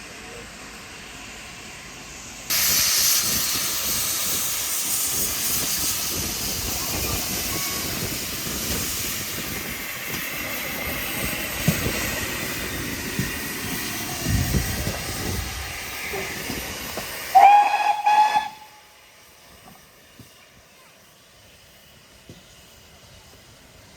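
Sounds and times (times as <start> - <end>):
locomotive steam hissing: 0.0 - 23.9
steam whistle: 17.3 - 19.0.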